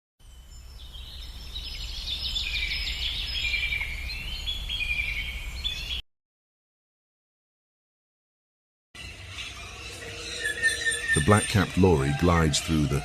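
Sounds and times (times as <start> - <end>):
birds chirping and trilling: 0.2 - 6.0, 9.0 - 13.0.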